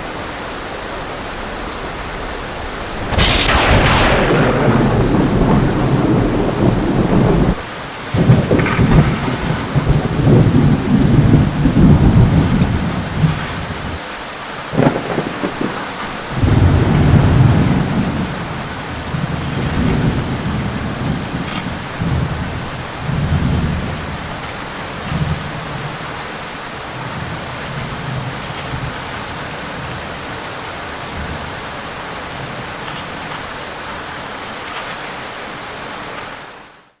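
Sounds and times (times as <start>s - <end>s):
steady rain: 0.0s - 37.0s
rolling thunder: 1.1s - 14.0s, 14.6s - 33.3s
sharp thunder crack: 2.0s - 14.0s, 14.7s - 26.3s.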